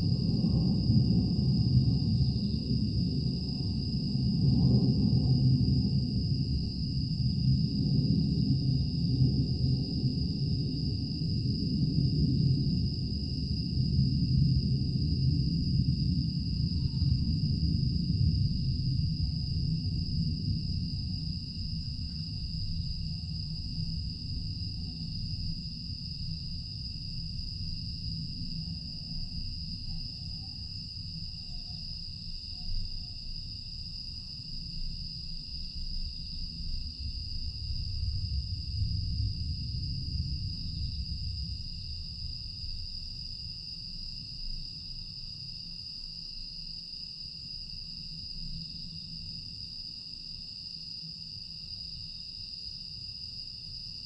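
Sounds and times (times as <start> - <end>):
night insects chirping: 0.0 - 54.0
low rumble: 36.2 - 43.1.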